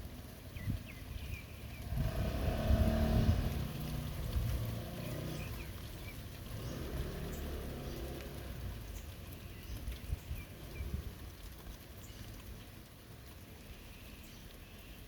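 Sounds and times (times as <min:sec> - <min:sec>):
steady rain: 0:00.0 - 0:15.0
vehicle engine passing by: 0:01.8 - 0:09.1.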